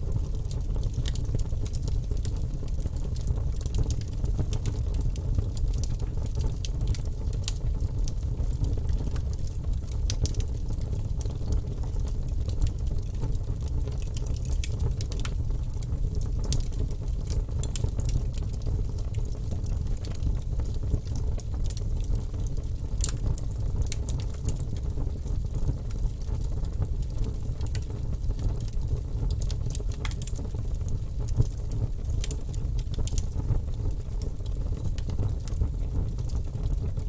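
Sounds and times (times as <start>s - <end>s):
wood fire crackling: 0.1s - 37.0s.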